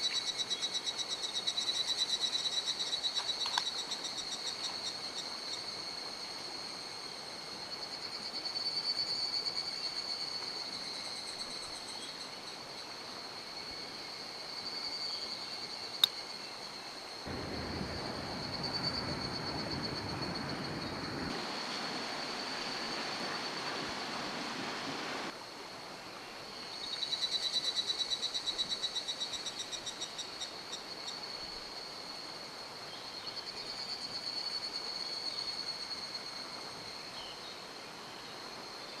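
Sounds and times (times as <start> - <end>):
pulsing chorus of small wildlife: 17.0 - 25.4
loud rushing water: 17.3 - 25.4
mountain stream rushing: 17.3 - 26.0.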